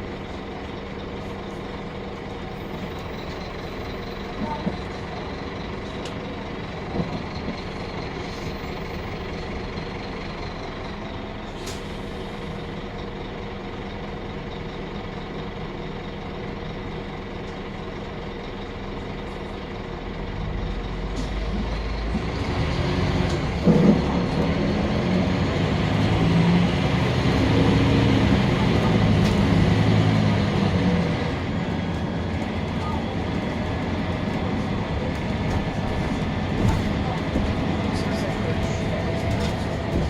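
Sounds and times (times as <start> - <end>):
city bus engine: 0.0 - 40.0.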